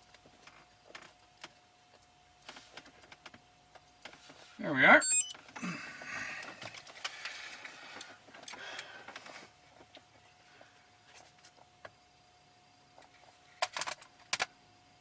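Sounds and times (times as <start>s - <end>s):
faint steady tone: 4.8s - 5.8s.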